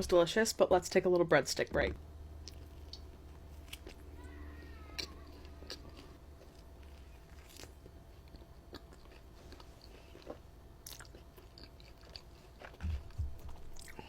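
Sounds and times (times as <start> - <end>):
chewing bread crunches: 2.4 - 4.0, 5.0 - 14.0.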